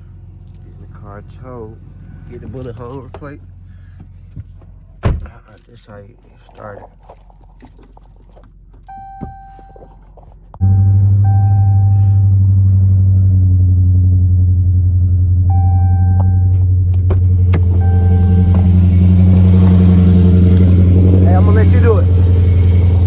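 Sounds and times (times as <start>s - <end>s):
car engine starting and idling: 0.0s - 23.0s
dashboard chimes: 8.9s - 9.9s, 10.6s - 12.3s, 15.5s - 16.6s, 17.6s - 23.0s.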